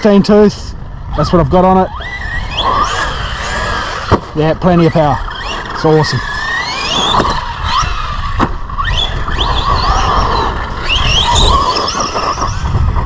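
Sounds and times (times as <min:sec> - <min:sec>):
electric motor whining: 0:01.1 - 0:13.0.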